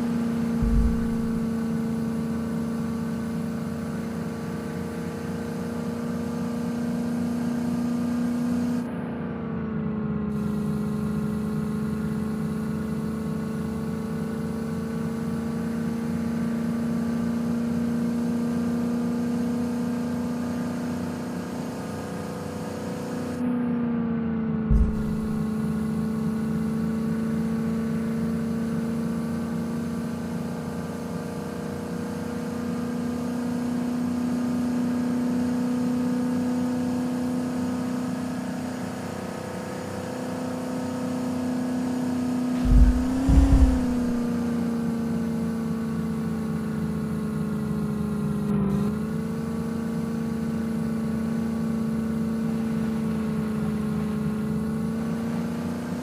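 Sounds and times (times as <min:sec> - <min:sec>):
low thumps: 0:00.6 - 0:01.5, 0:24.7 - 0:25.4, 0:42.6 - 0:44.4
car engine humming: 0:00.6 - 0:01.6, 0:24.7 - 0:25.6, 0:42.6 - 0:44.4.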